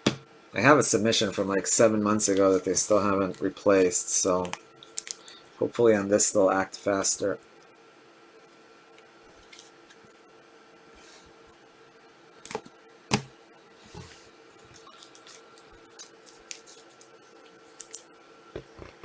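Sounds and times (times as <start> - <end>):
faint steady hum: 0.0 - 19.0
cards rustling: 1.2 - 5.4, 14.0 - 18.1.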